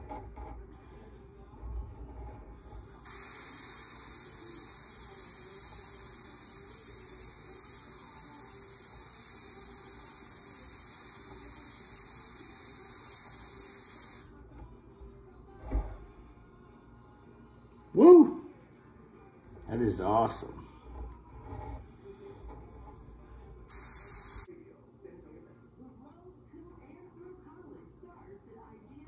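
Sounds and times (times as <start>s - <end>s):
airbrush hissing: 3.0s - 14.4s, 23.7s - 24.5s.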